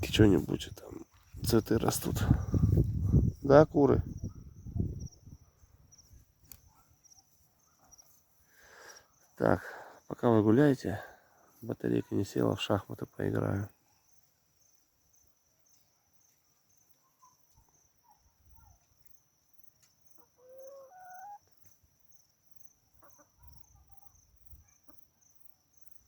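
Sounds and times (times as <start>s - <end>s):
chicken drawn-out call: 20.1s - 21.5s, 22.9s - 24.0s
chickens clucking: 20.1s - 21.7s, 22.9s - 23.6s.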